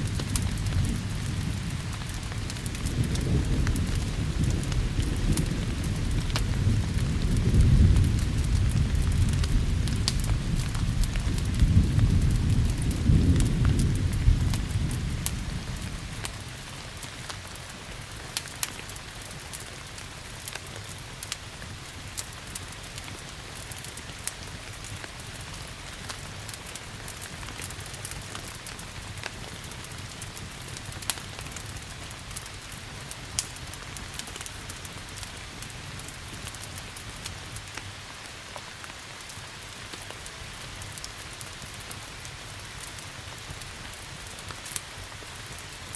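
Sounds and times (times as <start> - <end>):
thunder rumbling: 0.0 - 17.0
fireplace fire crackling: 0.0 - 45.9
steady rain hissing: 0.0 - 45.9.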